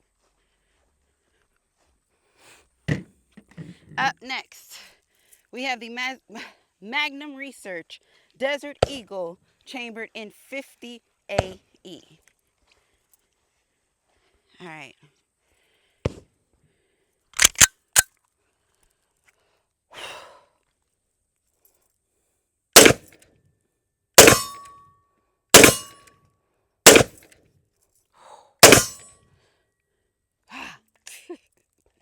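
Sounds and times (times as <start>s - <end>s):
metallic gun handling clicks: 17.4s - 18.1s, 24.2s - 24.8s, 28.6s - 29.1s
pistol shots: 22.8s - 23.1s, 24.2s - 24.7s, 25.6s - 26.0s, 26.9s - 27.2s, 28.6s - 29.1s.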